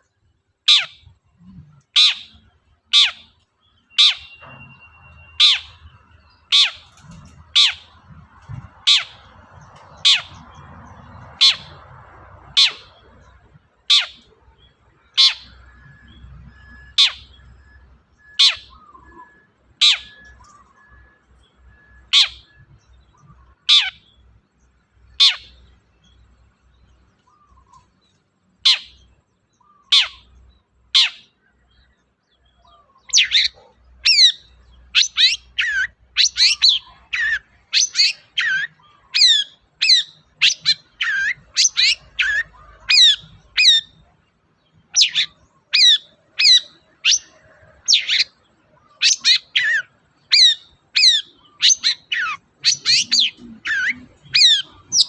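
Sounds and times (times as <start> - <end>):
shrike singing: 44.7 - 55.0.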